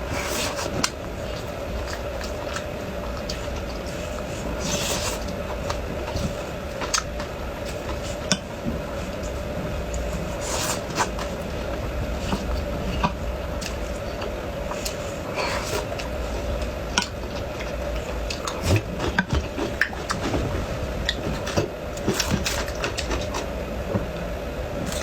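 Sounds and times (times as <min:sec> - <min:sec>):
crunchy chewing: 0:00.0 - 0:23.6
steady low hum: 0:00.0 - 0:25.0.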